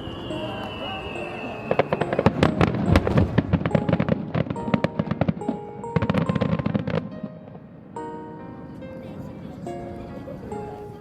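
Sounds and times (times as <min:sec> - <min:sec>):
fireworks crackling and banging: 0:00.0 - 0:07.8
background music: 0:00.0 - 0:11.0.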